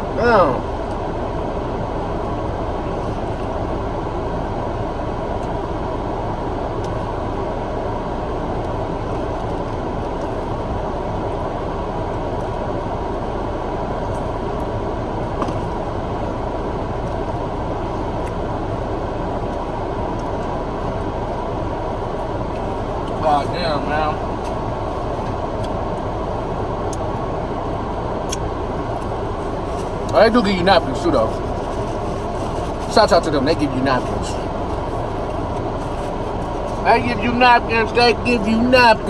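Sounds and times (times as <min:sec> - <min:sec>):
low rumbling noise: 0:00.0 - 0:39.0.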